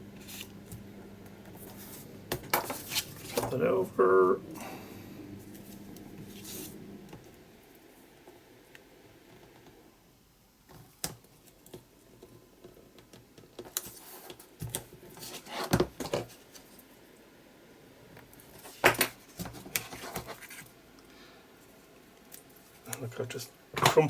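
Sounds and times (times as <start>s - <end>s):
paper rustling and crinkling: 1.6s - 3.6s.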